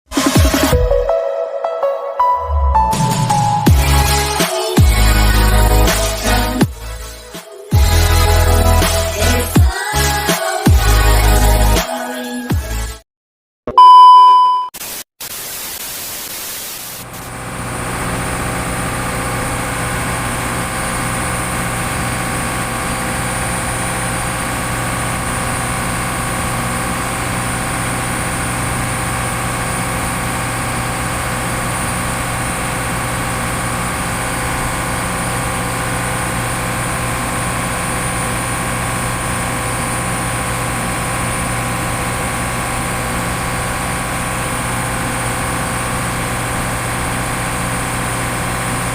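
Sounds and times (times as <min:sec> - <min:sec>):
short loud beep: 0:13.7 - 0:14.8
hiss: 0:14.9 - 0:17.3
freezer machinery drone: 0:17.1 - 0:48.9.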